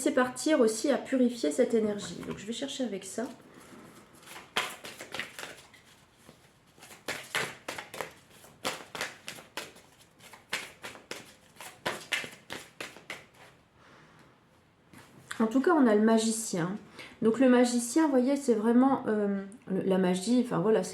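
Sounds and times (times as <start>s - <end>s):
cards being shuffled: 4.2s - 13.6s.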